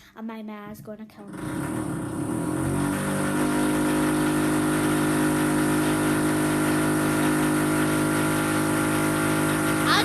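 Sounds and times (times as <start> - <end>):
motor running steadily: 1.3 - 10.0.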